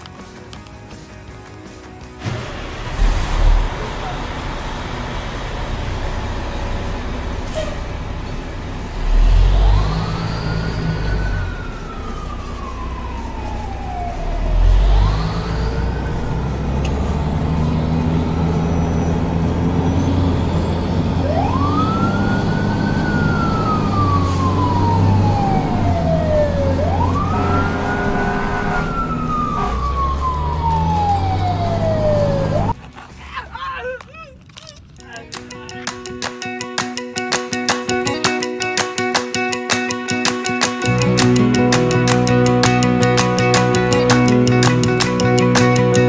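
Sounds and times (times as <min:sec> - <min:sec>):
low engine rumble: 0:02.2 - 0:32.8
wailing emergency siren: 0:09.0 - 0:32.8.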